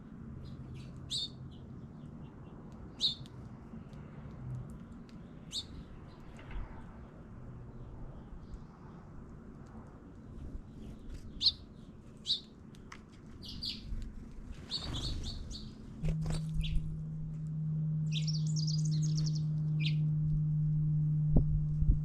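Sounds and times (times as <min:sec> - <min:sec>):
small songbirds chirping: 0:00.1 - 0:09.2, 0:10.1 - 0:12.6, 0:13.3 - 0:16.9, 0:18.1 - 0:20.1
steady low hum: 0:03.4 - 0:22.0
bird rapid trill: 0:13.4 - 0:13.9, 0:14.7 - 0:16.9, 0:18.1 - 0:20.0.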